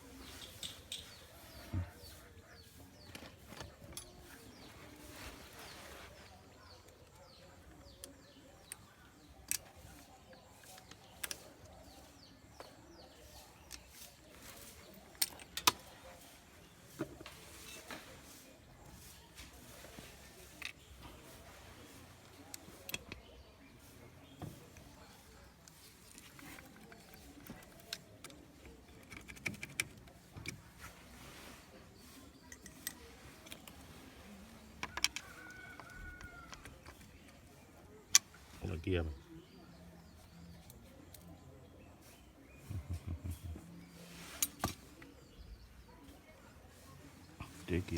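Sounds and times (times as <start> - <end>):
small birds chirping: 0.0 - 47.9
hand tools clicking and tapping: 0.1 - 2.2, 6.8 - 16.4, 24.3 - 30.8, 32.3 - 33.8, 34.6 - 38.4
metal tools clinking: 0.2 - 1.3.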